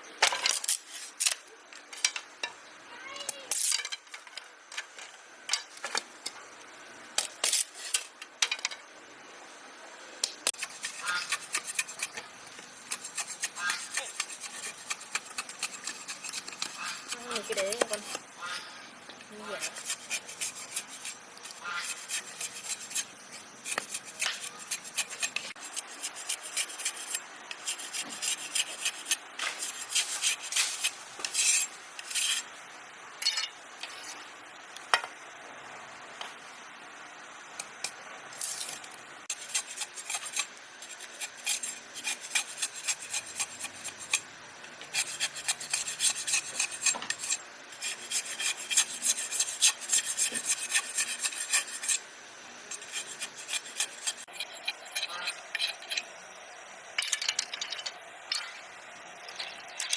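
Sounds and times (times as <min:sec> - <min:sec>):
rapid scraping and rubbing strokes: 0:19.3 - 0:32.6, 0:44.9 - 0:52.0, 0:52.6 - 0:56.0.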